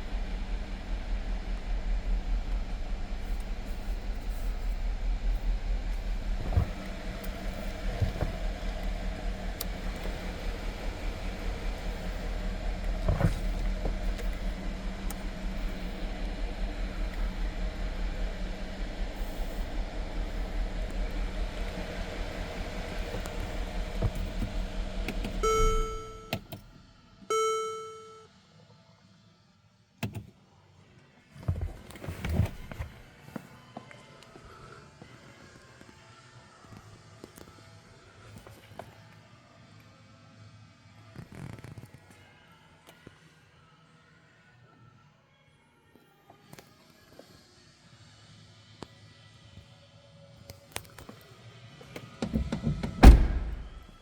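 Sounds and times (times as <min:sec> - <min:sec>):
car engine idling: 0:00.0 - 0:26.9, 0:52.3 - 0:54.0
short electronic chimes: 0:25.4 - 0:26.4
thumps: 0:52.2 - 0:54.0.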